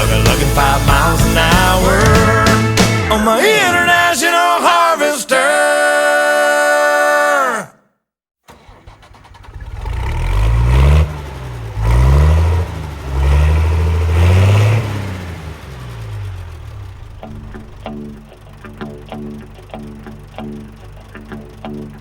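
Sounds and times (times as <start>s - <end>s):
vehicle engine revving: 8.5s - 18.9s.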